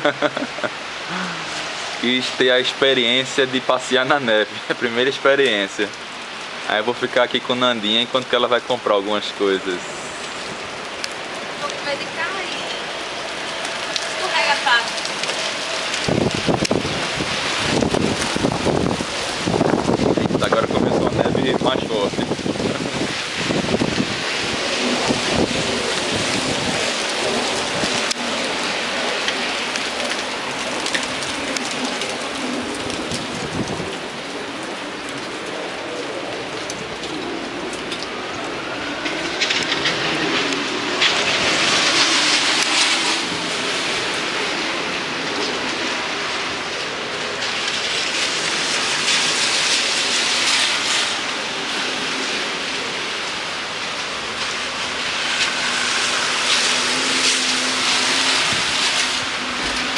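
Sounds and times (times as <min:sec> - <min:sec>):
hiss of falling snow: 0:00.0 - 0:06.8, 0:09.6 - 0:20.0, 0:38.1 - 0:59.9.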